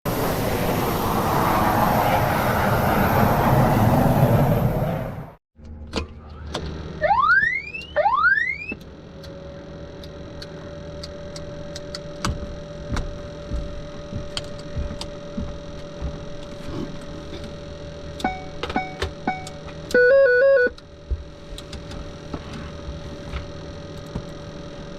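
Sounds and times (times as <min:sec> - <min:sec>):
rising electronic tones: 0:07.0 - 0:08.8.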